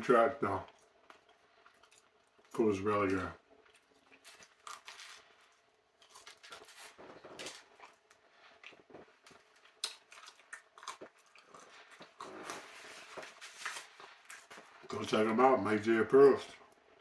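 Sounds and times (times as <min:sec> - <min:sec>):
person chewing: 0:00.6 - 0:02.5, 0:03.5 - 0:14.9
small handling noises: 0:00.6 - 0:15.3.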